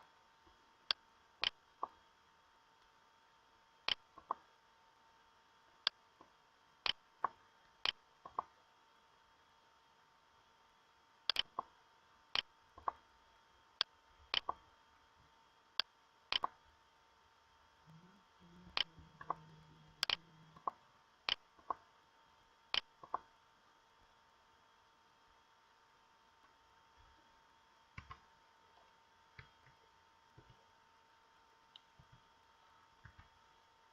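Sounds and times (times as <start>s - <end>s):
faint steady hiss and hum: 0.0s - 33.9s
computer mouse clicking: 11.3s - 11.7s, 13.8s - 14.6s, 16.3s - 16.6s, 20.0s - 21.8s, 22.7s - 23.3s, 28.0s - 28.3s
faint low drone: 17.4s - 22.8s.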